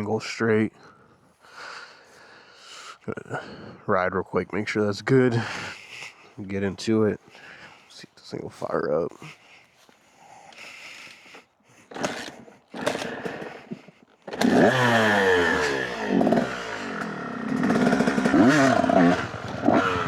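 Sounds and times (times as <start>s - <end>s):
dirt bike engine revving: 11.9s - 20.0s
dirt bike engine turning over: 11.9s - 20.0s.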